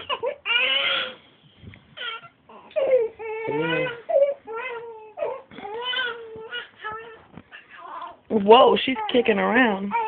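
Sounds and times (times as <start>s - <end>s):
baby fussing and crying: 0.0s - 1.2s, 2.0s - 8.2s.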